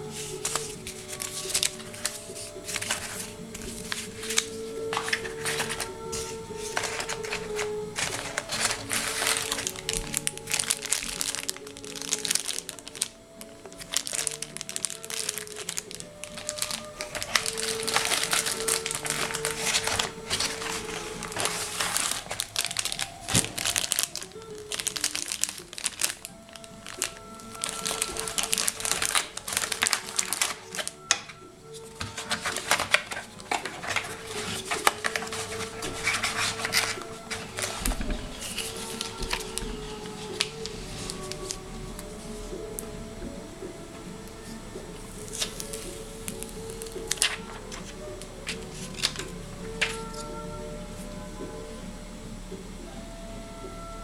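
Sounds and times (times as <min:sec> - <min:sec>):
packaging crinkling and rustling: 0:00.0 - 0:43.3, 0:44.3 - 0:51.4
background music with held notes: 0:00.0 - 0:54.0.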